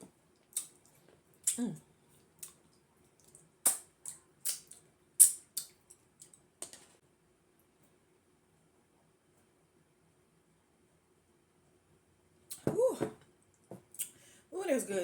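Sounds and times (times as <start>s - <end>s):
wet mouth eating sounds: 0.5s - 5.9s.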